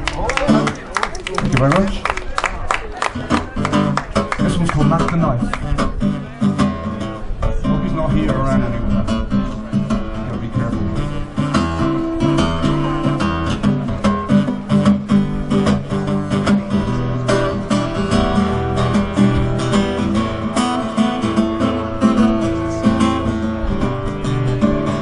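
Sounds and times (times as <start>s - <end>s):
acoustic guitar strumming: 3.1s - 25.0s.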